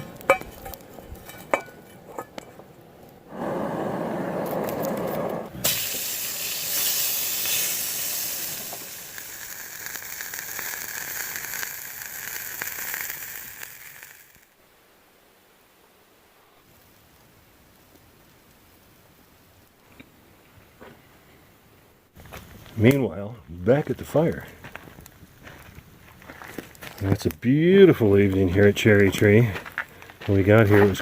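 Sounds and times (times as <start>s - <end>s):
patty sizzling in a frying pan: 5.6s - 14.5s.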